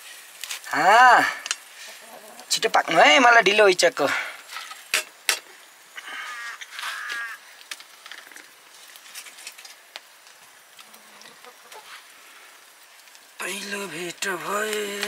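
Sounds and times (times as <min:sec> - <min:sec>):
bird calling: 0:06.0 - 0:07.5.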